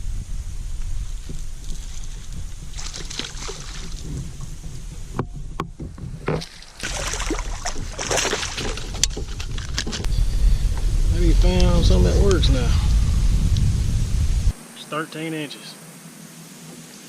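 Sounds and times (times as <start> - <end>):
water slapping kayak hull: 0.0 - 12.7
wind buffeting microphone: 0.0 - 14.6
knocks and clatter: 1.2 - 10.9.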